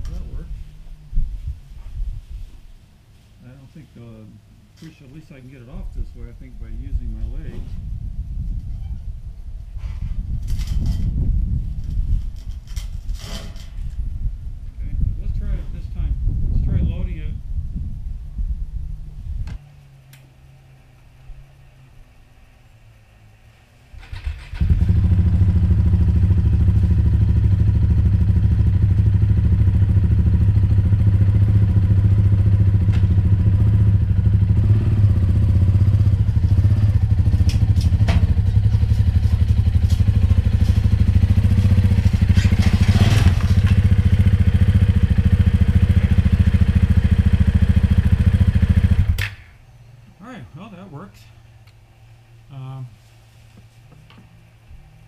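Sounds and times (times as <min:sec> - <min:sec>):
motorcycle engine starting and running: 0:18.6 - 0:49.5.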